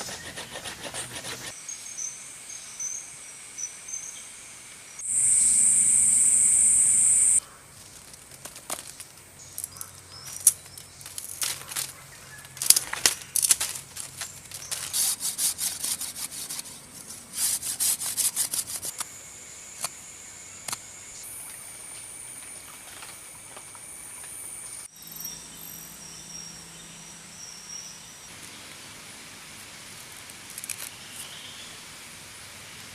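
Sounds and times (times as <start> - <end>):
short scraping strokes: 0.0 - 1.6, 14.5 - 19.0.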